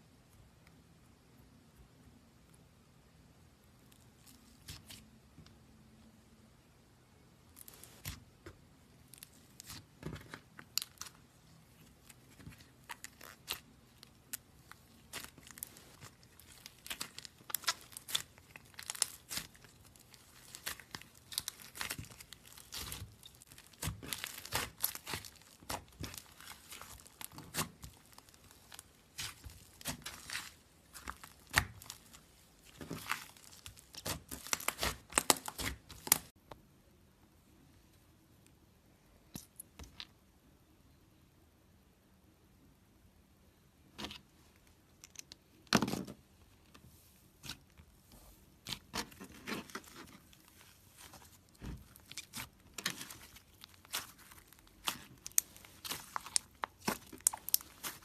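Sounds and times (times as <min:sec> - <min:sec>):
slime kneaded with sticky pops: 0:07.6 - 0:36.4, 0:47.4 - 0:58.0.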